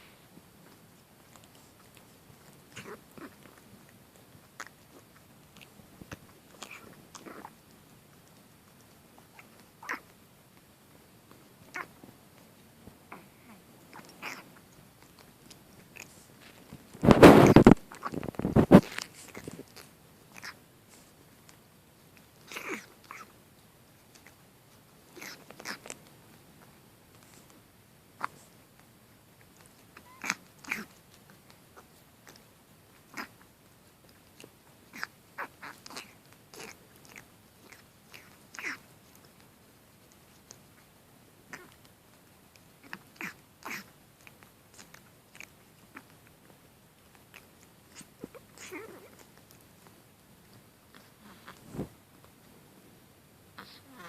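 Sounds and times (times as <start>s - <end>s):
kitten snorting through nose: 13.2s - 16.4s, 17.0s - 21.2s, 22.4s - 23.3s, 25.1s - 26.0s, 30.0s - 31.0s, 33.0s - 33.4s, 34.2s - 38.9s, 42.8s - 46.1s, 50.9s - 52.0s.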